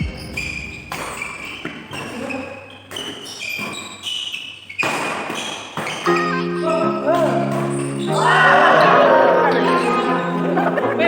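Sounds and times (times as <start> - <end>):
shoe squeaks on court: 0.0 - 8.3
racket hitting shuttlecock: 4.8 - 8.1.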